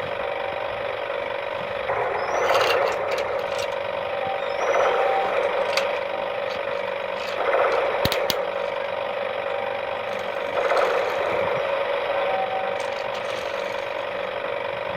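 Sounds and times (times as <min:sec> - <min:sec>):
toy motor and gears whirring: 0:01.4 - 0:14.9
sharp clicks: 0:04.5 - 0:08.8.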